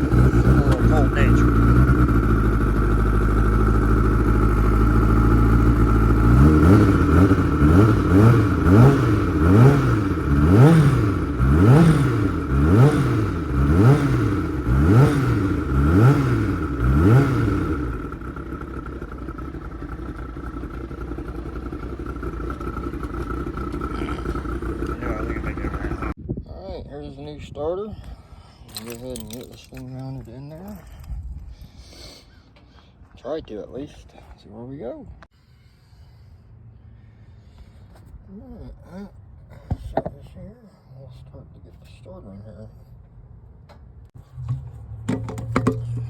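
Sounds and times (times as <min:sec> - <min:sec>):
engine revving: 0:00.0 - 0:26.2, 0:44.2 - 0:46.0.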